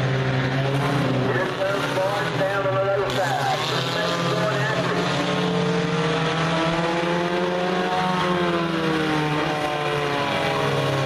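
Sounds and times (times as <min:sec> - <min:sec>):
race car engines passing by: 0:00.0 - 0:11.0.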